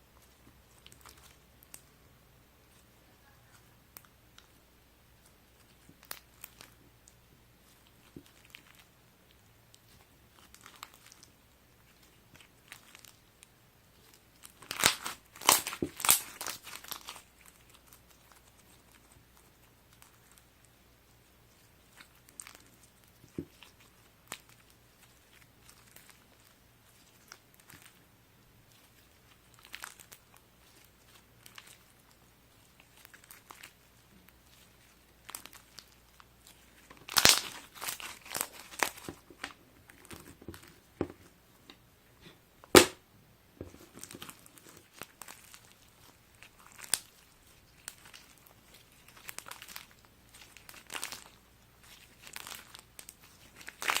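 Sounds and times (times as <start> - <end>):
slime crackling and clicking: 35.2 - 40.2
sharp pop: 42.7 - 43.0.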